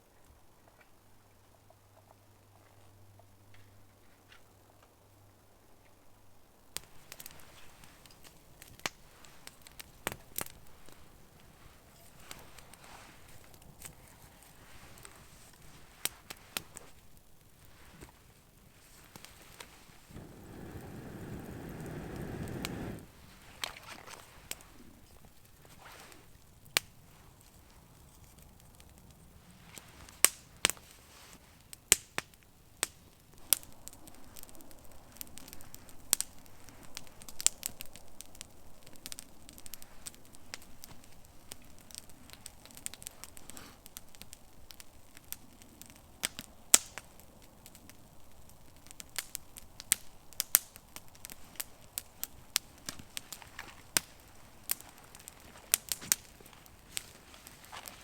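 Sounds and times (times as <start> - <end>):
faint steady hiss: 0.0 - 58.0
campfire crackling and popping: 6.7 - 58.0.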